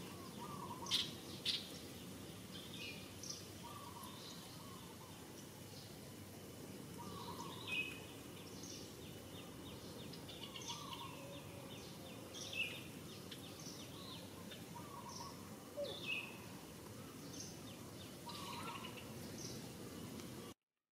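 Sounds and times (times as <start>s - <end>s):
birds chirping: 0.0s - 6.0s, 7.0s - 20.6s
outdoor background hiss: 0.0s - 20.6s.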